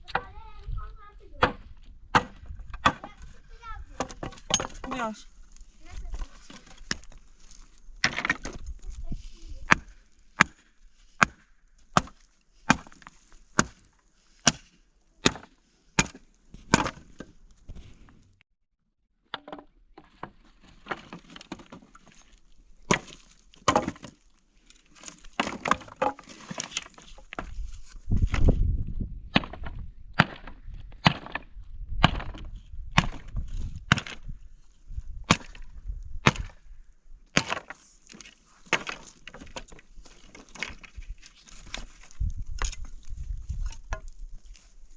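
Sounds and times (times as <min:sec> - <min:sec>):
wood being chopped: 0:01.3 - 0:03.3, 0:03.9 - 0:05.2, 0:06.0 - 0:07.2, 0:08.0 - 0:08.7, 0:09.6 - 0:17.3, 0:19.3 - 0:24.2, 0:25.0 - 0:27.6, 0:29.3 - 0:34.3, 0:35.2 - 0:36.6, 0:37.3 - 0:41.0.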